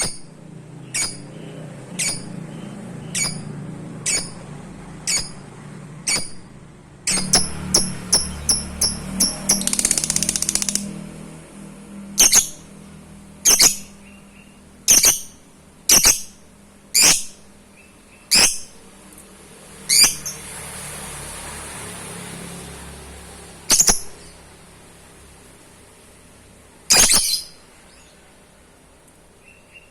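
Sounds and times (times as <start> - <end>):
lovebird chattering and chirping: 0.0 - 11.1, 12.0 - 18.8, 19.8 - 20.5, 23.6 - 24.5, 26.9 - 28.3.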